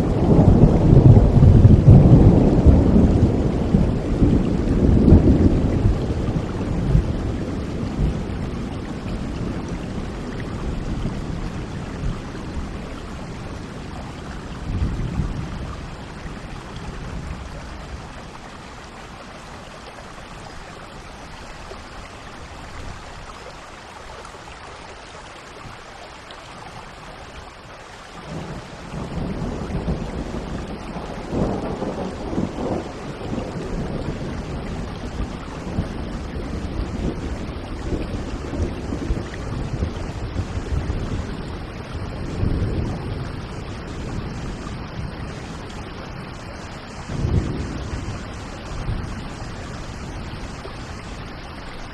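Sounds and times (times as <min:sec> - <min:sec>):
rolling thunder: 0:00.0 - 0:18.1, 0:28.3 - 0:51.2
steady rain: 0:00.0 - 0:51.9.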